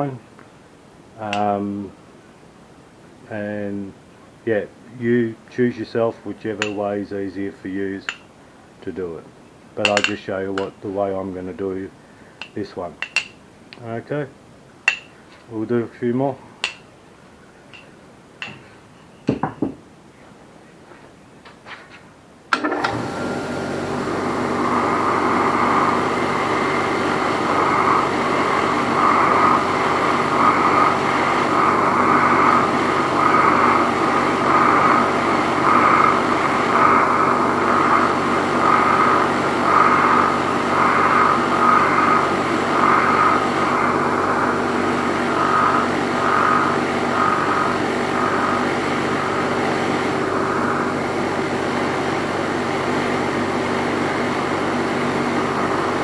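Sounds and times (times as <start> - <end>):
motor running: 22.6 - 56.0
wire wheel scrubbing metal: 23.4 - 56.0.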